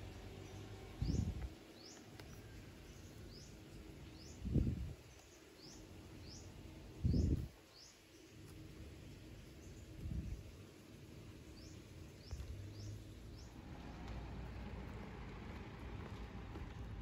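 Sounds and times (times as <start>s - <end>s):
bird chirping: 0.0s - 8.4s.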